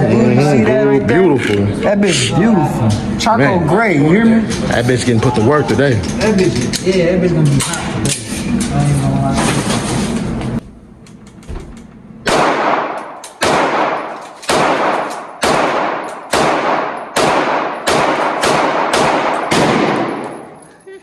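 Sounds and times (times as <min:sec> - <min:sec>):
pistol shots with long echo: 0:12.2 - 0:20.6.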